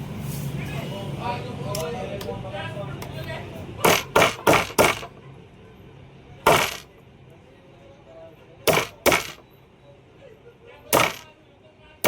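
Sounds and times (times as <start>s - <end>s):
metal striking metal: 6.5s - 6.9s, 8.7s - 9.4s, 11.0s - 11.3s.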